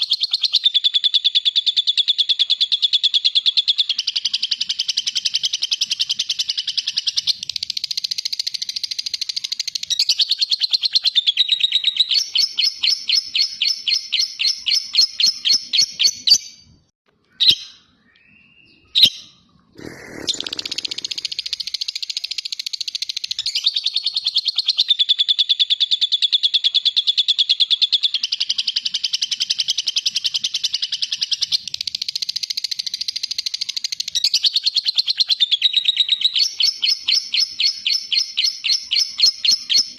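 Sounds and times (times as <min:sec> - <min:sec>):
lovebird chattering song: 0:17.4 - 0:39.9.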